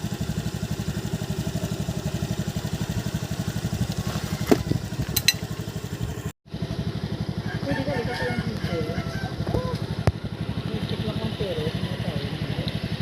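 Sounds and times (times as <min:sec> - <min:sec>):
small engine idling: 0:00.0 - 0:13.0
sharp metallic clinks: 0:05.2 - 0:05.5.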